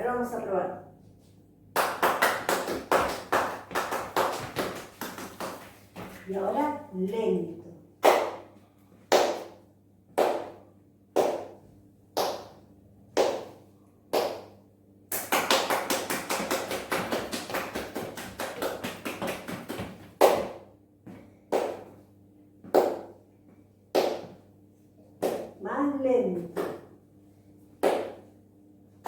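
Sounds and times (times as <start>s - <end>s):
person clapping hands: 1.8s - 5.8s, 8.0s - 8.5s, 9.1s - 9.6s, 10.2s - 10.6s, 11.2s - 11.6s, 12.2s - 12.6s, 13.2s - 13.6s, 14.2s - 20.6s, 21.5s - 21.9s, 22.8s - 23.1s, 27.8s - 28.2s.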